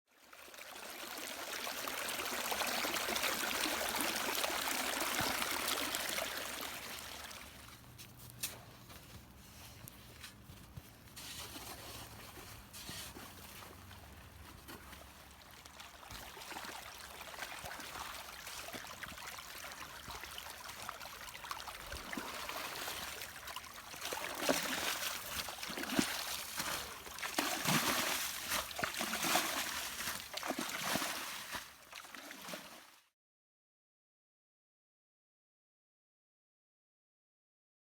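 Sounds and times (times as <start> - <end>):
rainwater trickling and gurgling: 0.2 - 8.0, 12.0 - 31.3
small water splashes: 0.2 - 33.0.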